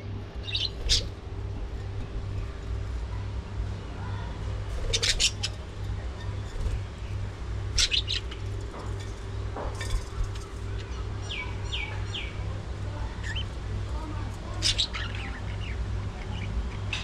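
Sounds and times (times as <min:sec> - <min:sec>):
steady low hum: 0:00.0 - 0:17.0
budgerigars chirping: 0:00.4 - 0:01.2, 0:04.8 - 0:08.6, 0:14.5 - 0:16.6.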